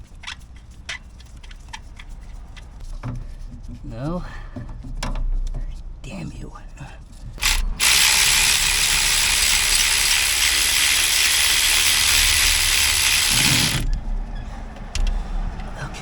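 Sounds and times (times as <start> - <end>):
ratchet wrench clattering: 7.4 - 13.9.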